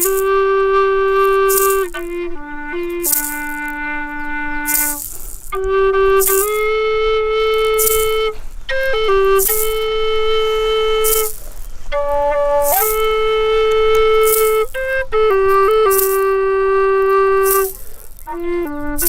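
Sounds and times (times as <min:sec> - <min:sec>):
flute playing long notes: 0:00.0 - 0:19.0
hissy shakes or breaths: 0:04.7 - 0:05.6, 0:07.8 - 0:08.8, 0:09.5 - 0:13.2, 0:17.5 - 0:18.4.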